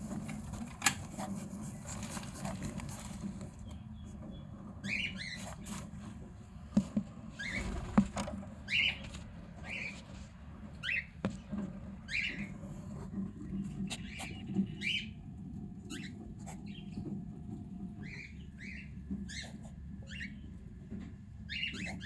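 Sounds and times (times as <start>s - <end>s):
cockatiel scratchy chirps: 4.8s - 5.7s, 15.9s - 17.0s, 18.0s - 20.4s, 21.5s - 22.0s.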